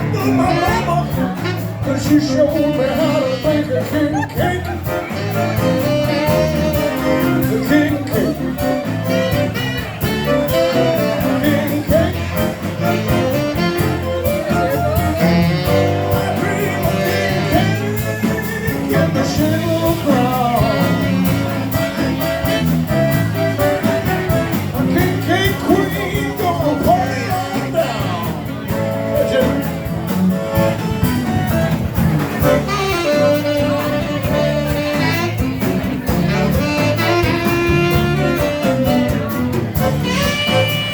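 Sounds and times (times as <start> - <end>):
person singing: 0.0 - 21.7, 24.8 - 29.6
zydeco band playing: 0.0 - 40.9.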